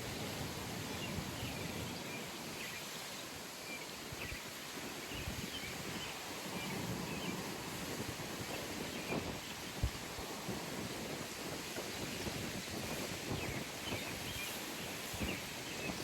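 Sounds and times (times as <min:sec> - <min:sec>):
wind noise on microphone: 0:00.0 - 0:16.0.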